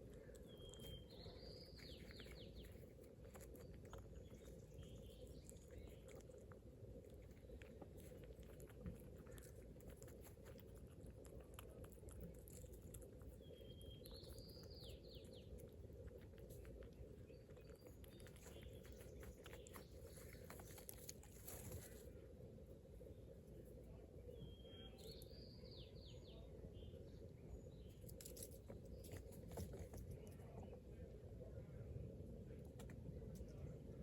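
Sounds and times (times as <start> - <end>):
bird chirping: 0.0 - 8.1, 12.2 - 21.9, 24.2 - 30.8
low background hum: 0.0 - 34.0
squirrel chewing: 0.0 - 34.0.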